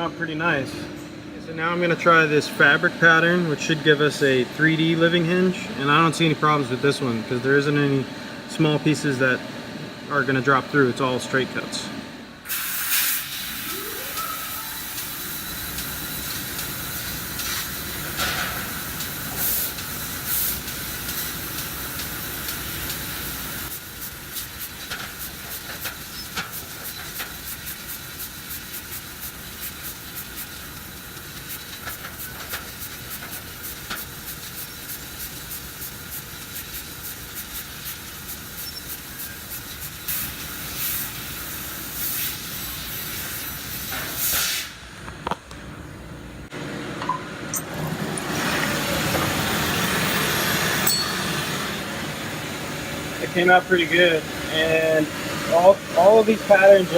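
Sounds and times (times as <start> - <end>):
laser cutter gas hiss: 12.4 - 44.9, 48.8 - 56.9.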